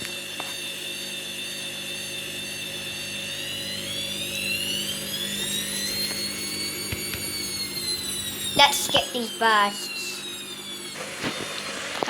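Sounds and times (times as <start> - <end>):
washer dryer spinning: 0.0 - 12.0.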